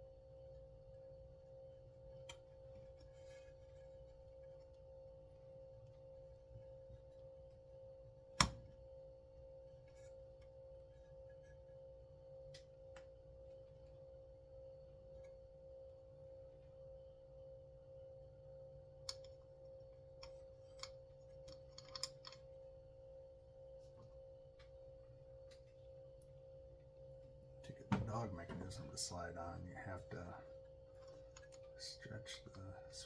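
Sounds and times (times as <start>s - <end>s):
faint background hum: 0.0s - 33.0s
small parts clicking: 20.2s - 22.5s.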